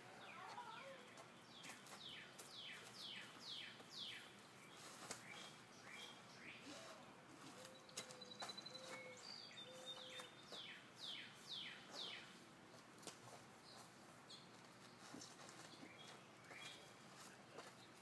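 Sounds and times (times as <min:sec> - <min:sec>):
bird whistling song: 0:05.3 - 0:06.6, 0:07.6 - 0:12.3.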